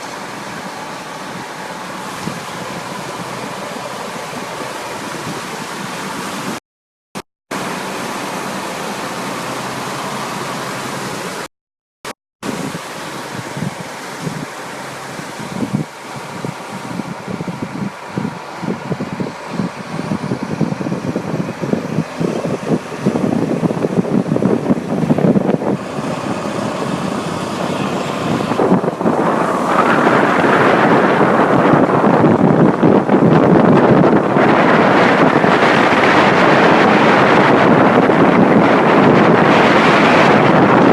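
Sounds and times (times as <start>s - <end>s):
steady rushing noise: 0.0s - 6.6s, 7.5s - 11.5s, 12.4s - 40.9s
truck engine: 0.0s - 6.6s, 7.5s - 11.5s, 12.4s - 40.9s
wind buffeting microphone: 0.0s - 6.6s, 12.4s - 40.9s
low gusty rumbling: 12.4s - 40.9s.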